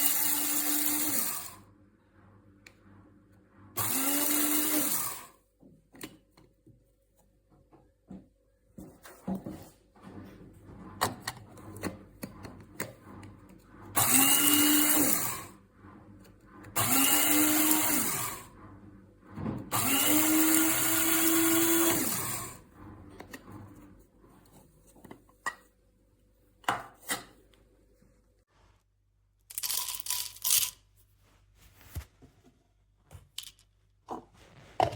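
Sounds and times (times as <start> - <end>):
coffee grinder motor: 0.0 - 1.6, 3.8 - 5.3, 13.9 - 15.6, 16.6 - 18.5, 19.7 - 23.4.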